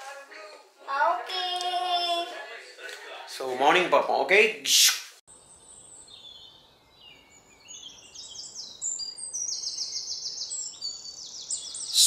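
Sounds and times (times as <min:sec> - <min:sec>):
birds singing and chirping: 0:05.3 - 0:12.0.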